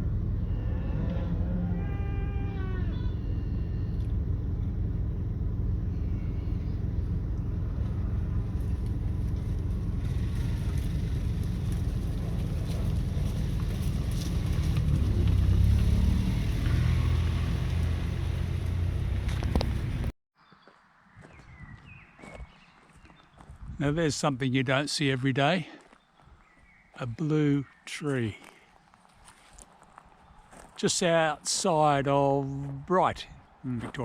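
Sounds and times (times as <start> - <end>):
vehicle driving along a road: 0.0 - 20.1.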